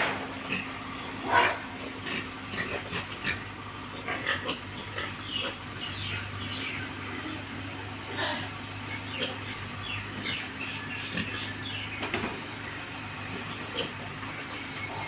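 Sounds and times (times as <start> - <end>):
pigs squealing: 0.0 - 15.0.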